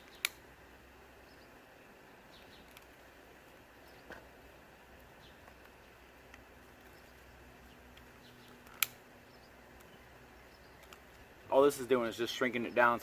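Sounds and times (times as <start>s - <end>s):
sharp click: 0.0s - 0.4s.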